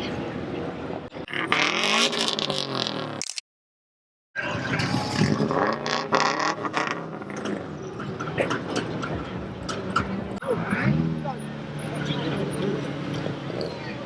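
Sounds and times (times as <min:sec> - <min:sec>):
scraping noises: 0:04.4 - 0:10.4.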